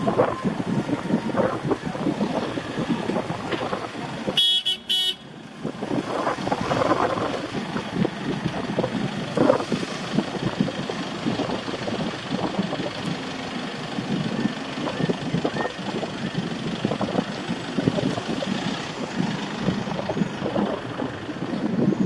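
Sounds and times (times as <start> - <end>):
city street noise: 0.0 - 22.0
vehicle horn toots: 4.3 - 5.3.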